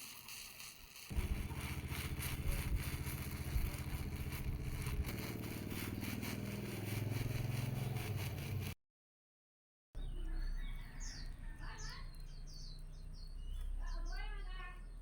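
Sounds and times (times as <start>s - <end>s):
motor running with rattling: 0.0s - 8.8s.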